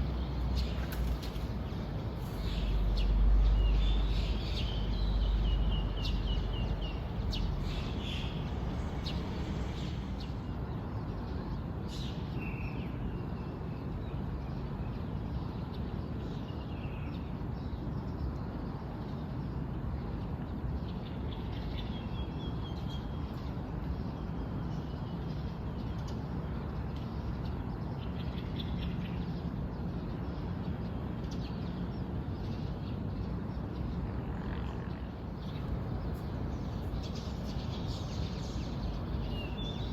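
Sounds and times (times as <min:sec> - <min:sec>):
wild birds chirping: 0:00.0 - 0:10.5, 0:35.0 - 0:39.9
low background noise: 0:00.0 - 0:39.9.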